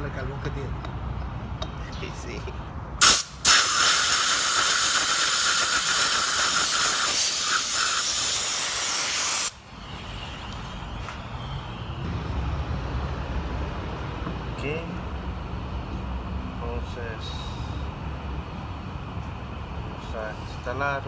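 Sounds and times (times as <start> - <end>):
aerosol spray hissing: 3.0 - 9.6.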